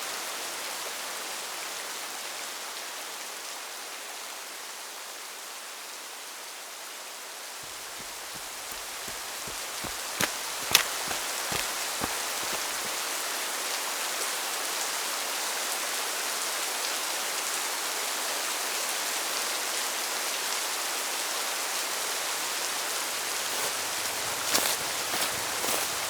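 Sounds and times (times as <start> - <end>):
steady rain hiss: 7.4 - 14.4, 20.9 - 26.0.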